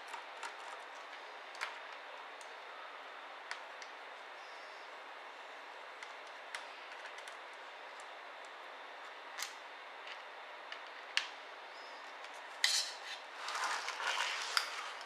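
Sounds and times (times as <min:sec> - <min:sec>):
scraping and rubbing: 0:13.0 - 0:15.0.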